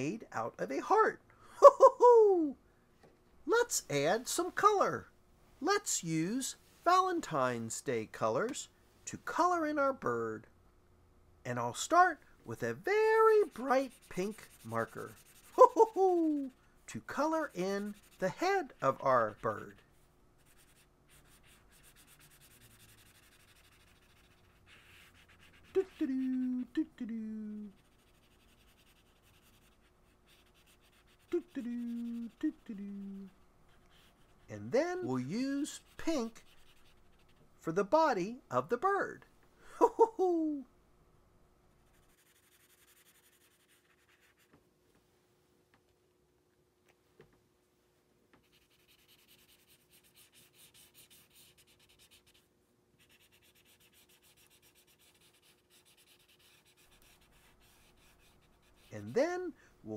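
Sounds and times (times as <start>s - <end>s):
person humming: 1.6s - 2.6s, 15.6s - 16.6s, 25.7s - 27.8s, 31.2s - 33.4s, 39.8s - 40.7s
marker rubbing on paper: 13.0s - 16.6s, 17.2s - 19.8s, 20.4s - 26.8s, 27.7s - 37.5s, 41.9s - 44.6s, 48.4s - 59.5s.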